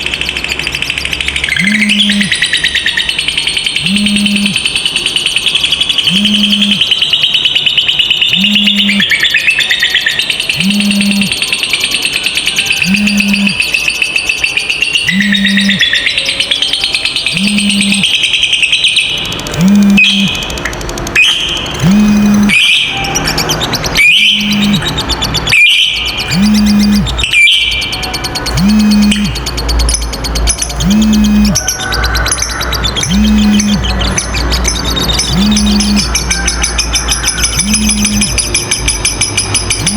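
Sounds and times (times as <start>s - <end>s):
lovebird chattering trill: 0.0s - 39.9s
shrill bird notes: 0.0s - 39.9s
low steady tone: 3.8s - 4.6s, 6.1s - 6.9s, 10.6s - 11.3s, 12.8s - 13.6s, 17.3s - 18.0s, 19.6s - 20.6s, 21.8s - 22.6s, 24.3s - 25.0s, 26.3s - 27.2s, 28.5s - 29.4s, 30.6s - 31.6s, 33.0s - 36.2s, 37.5s - 38.4s.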